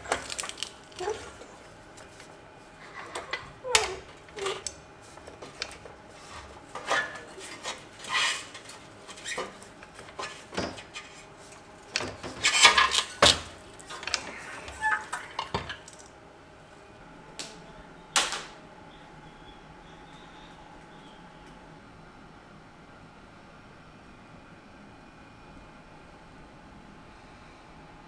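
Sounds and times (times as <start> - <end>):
metal tools clinking: 0.0 - 16.2.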